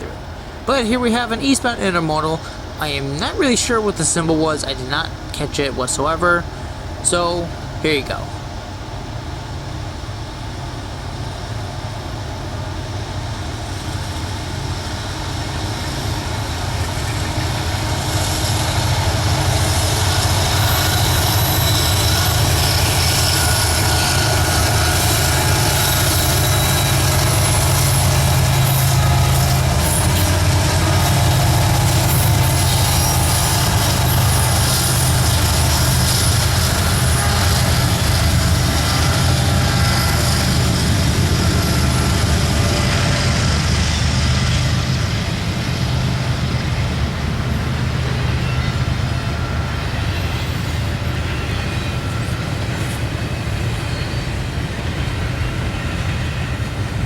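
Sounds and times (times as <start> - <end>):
freight train rumbling: 0.0 - 57.0
high wheel squeal: 15.0 - 57.0.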